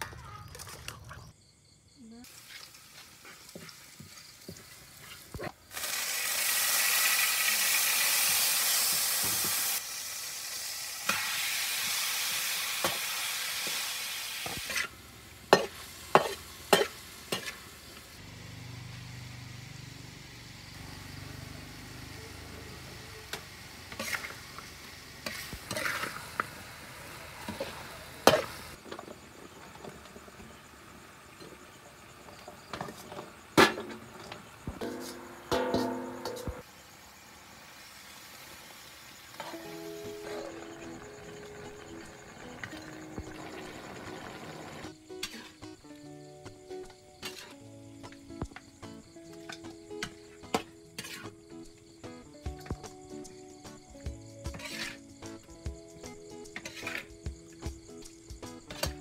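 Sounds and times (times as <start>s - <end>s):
food sizzling in hot oil: 2.2s - 48.6s, 50.0s - 51.5s, 52.7s - 57.1s
spatula scraping and clanking on wok: 2.4s - 5.5s, 14.4s - 14.9s, 15.5s - 17.8s, 23.3s - 26.5s, 27.4s - 29.1s, 32.4s - 36.6s, 45.1s - 45.8s, 47.2s - 47.6s, 49.3s - 51.4s, 54.5s - 55.1s, 56.5s - 57.2s.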